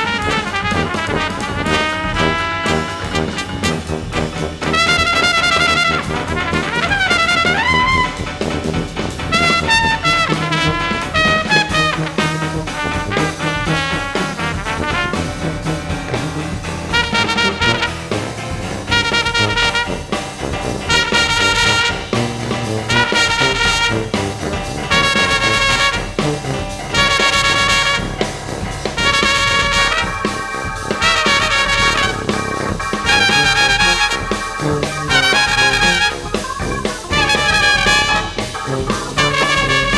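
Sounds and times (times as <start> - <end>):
baritone saxophone: 0.0 - 8.4, 9.3 - 39.9
drums: 0.0 - 39.9
keyboards: 0.0 - 39.9
punchy brass chords: 0.0 - 39.9
trumpets: 0.0 - 39.9
tuba: 0.0 - 39.9.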